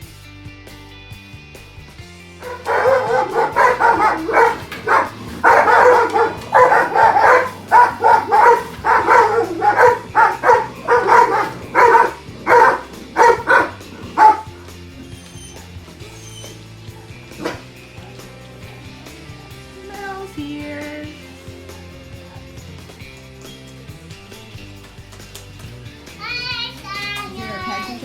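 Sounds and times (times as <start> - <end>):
dog barking: 2.4 - 15.8, 16.9 - 18.9.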